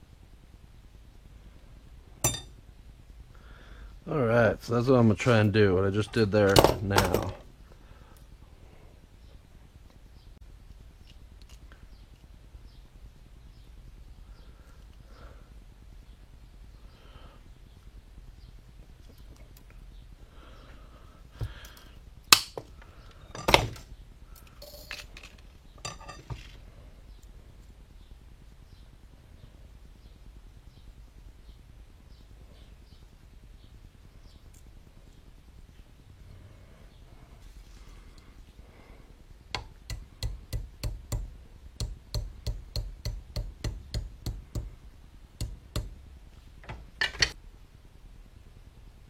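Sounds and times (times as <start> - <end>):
metal parts clinking on workbench: 2.2 - 2.5, 24.6 - 26.5.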